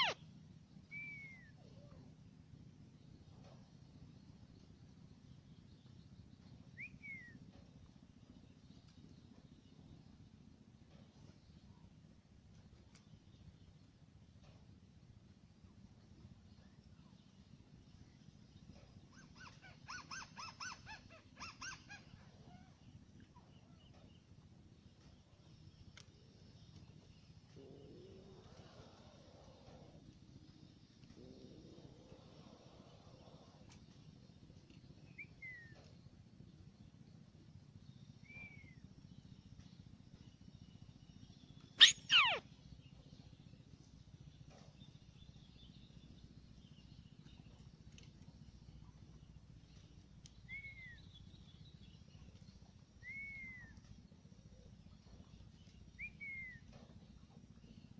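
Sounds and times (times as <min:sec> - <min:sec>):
bird calling rapid notes: 0:00.0 - 0:00.2, 0:41.8 - 0:42.4.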